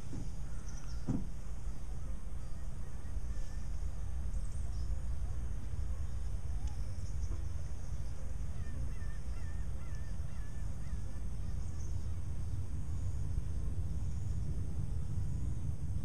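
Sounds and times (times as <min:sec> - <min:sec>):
bird calling faintly: 0:00.0 - 0:12.3
low outdoor rumble: 0:00.0 - 0:16.0.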